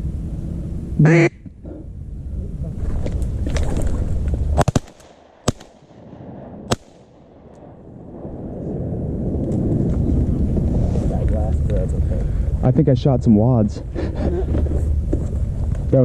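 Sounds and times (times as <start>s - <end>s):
low rumble of wind on microphone: 0.0s - 16.0s
shotgun shots: 4.5s - 7.8s.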